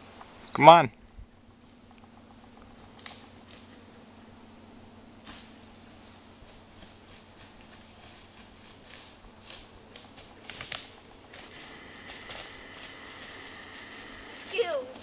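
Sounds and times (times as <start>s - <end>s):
light crackles: 0.0s - 4.4s, 5.2s - 15.0s
twig snapping: 3.0s - 3.7s, 9.5s - 11.5s
footsteps and rustling in brush: 5.2s - 15.0s.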